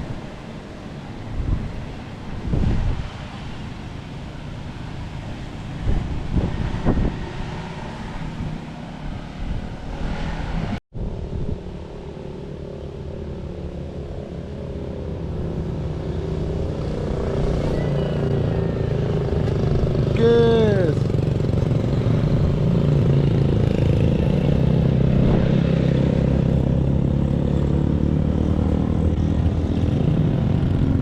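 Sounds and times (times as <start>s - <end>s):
wind buffeting microphone: 0.0s - 12.0s, 21.0s - 27.7s
motorcycle engine running: 15.2s - 31.0s.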